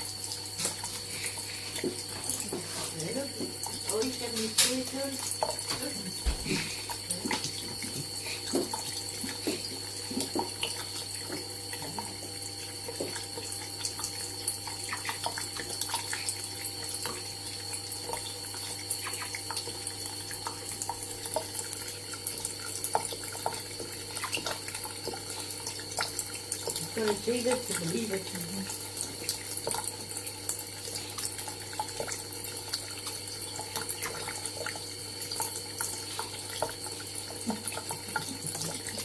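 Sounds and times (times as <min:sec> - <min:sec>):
small splashes and drips: 0:00.0 - 0:39.0
tap running into sink: 0:01.7 - 0:14.0.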